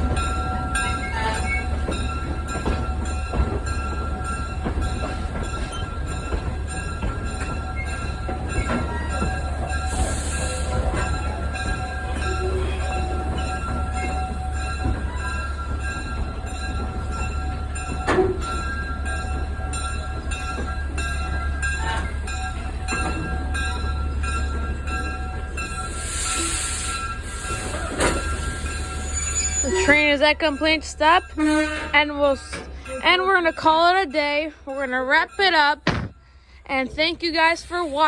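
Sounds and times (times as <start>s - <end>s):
train rumbling slowly: 0.0s - 38.0s
wheels squealing: 25.7s - 30.2s
sharp knock: 35.8s - 36.2s.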